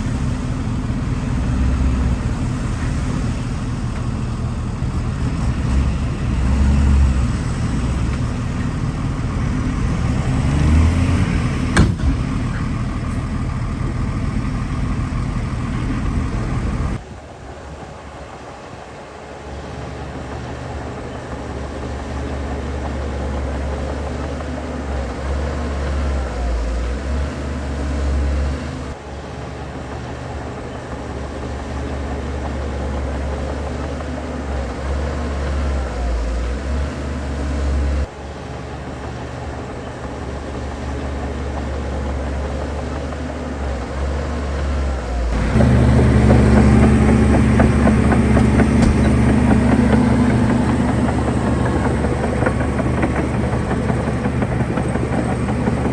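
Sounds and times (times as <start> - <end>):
heavy machinery diesel engines: 0.0 - 55.9
sharp knock: 11.8 - 12.6.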